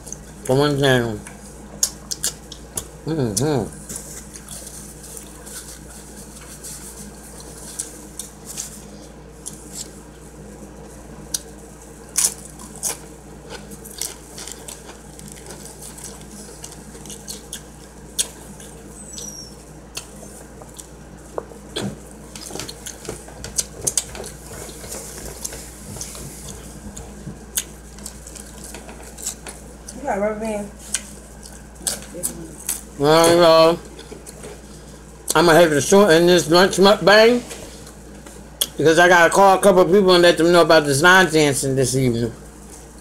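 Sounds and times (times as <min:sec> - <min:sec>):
steady low hum: 0:00.0 - 0:43.0
person chewing: 0:01.7 - 0:08.8, 0:09.4 - 0:10.1, 0:11.3 - 0:30.0, 0:30.8 - 0:35.4, 0:37.8 - 0:38.8.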